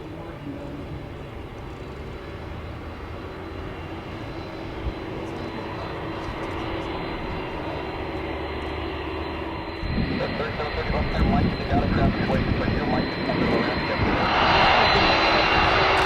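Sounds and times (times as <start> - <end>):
jet engines running with whine: 0.0 - 16.0.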